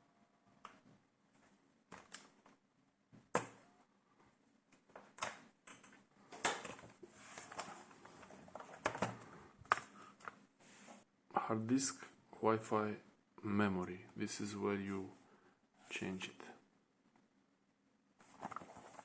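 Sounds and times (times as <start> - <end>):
soft scraping and rustling: 7.0 - 9.3, 9.9 - 11.1, 18.2 - 19.0.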